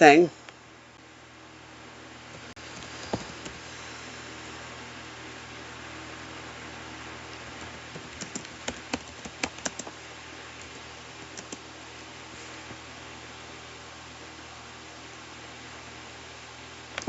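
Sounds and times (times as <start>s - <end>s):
steady background hiss: 0.0s - 17.0s
keyboard typing: 7.4s - 10.0s, 10.6s - 11.6s.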